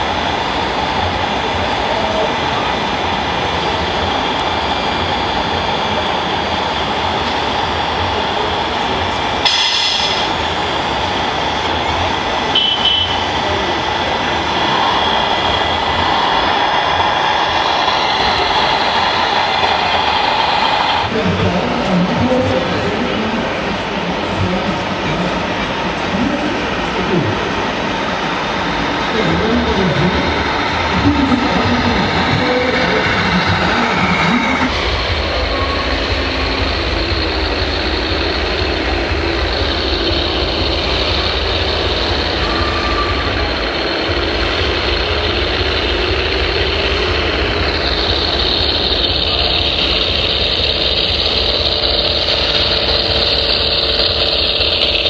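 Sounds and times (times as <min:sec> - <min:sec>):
whir of small electric motors: 0:28.4 - 0:55.0.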